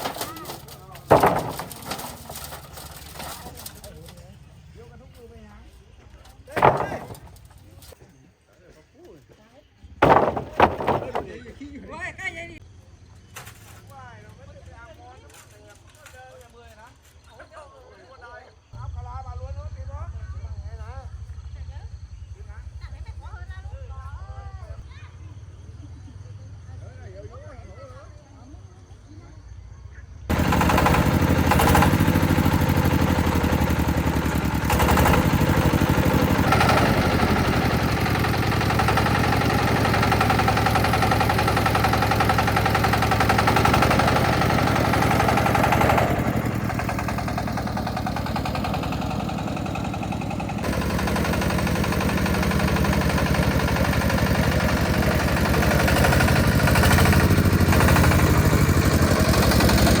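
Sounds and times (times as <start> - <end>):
knocks: 0.0 - 3.7, 6.5 - 7.6, 10.0 - 11.4
concrete mixer engine running: 0.0 - 5.1, 5.8 - 8.0, 10.0 - 12.5, 30.3 - 60.0.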